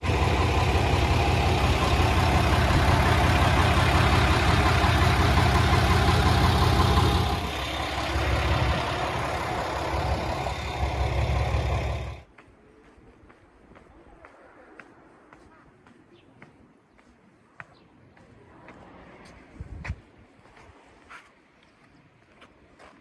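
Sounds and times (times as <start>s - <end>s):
vehicle engine rumble: 0.0s - 12.2s.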